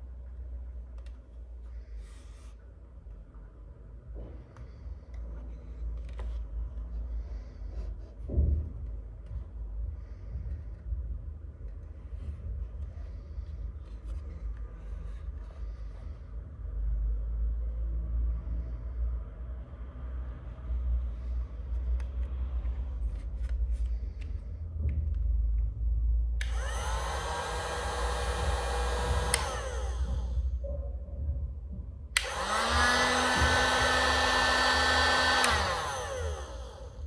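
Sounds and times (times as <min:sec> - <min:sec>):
heat gun fan motor whining: 0:26.4 - 0:30.5, 0:32.2 - 0:37.0.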